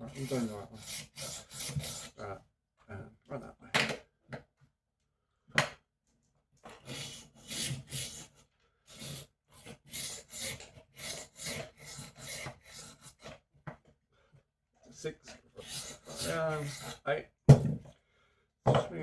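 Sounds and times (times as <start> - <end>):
knife rasping on sharpener: 0.0 - 2.2, 6.8 - 13.4, 15.6 - 17.0.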